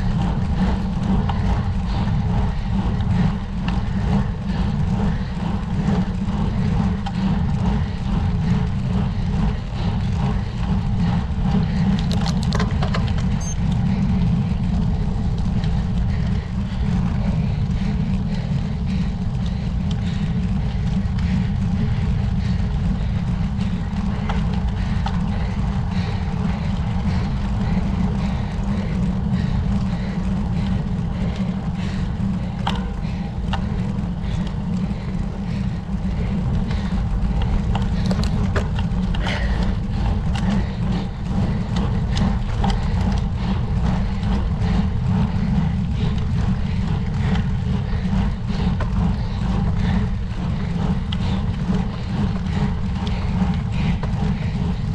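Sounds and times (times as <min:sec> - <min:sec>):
wind rumble on microphone: 0:00.0 - 0:54.9.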